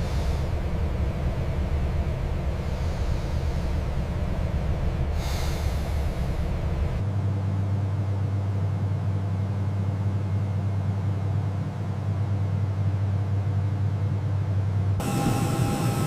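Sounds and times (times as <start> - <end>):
low machine rumble: 0.0 - 16.0
smooth low hum: 0.0 - 16.0
burst of hiss: 5.2 - 6.3.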